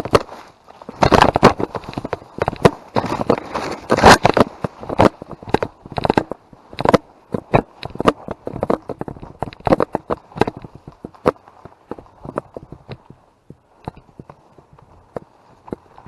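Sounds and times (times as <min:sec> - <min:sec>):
footsteps on dry leaves: 0:00.0 - 0:05.4.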